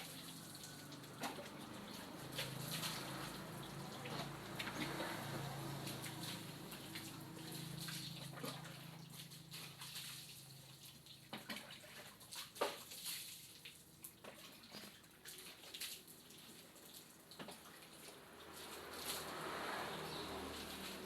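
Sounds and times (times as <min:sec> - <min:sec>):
water splashing and dripping: 0:00.0 - 0:21.0.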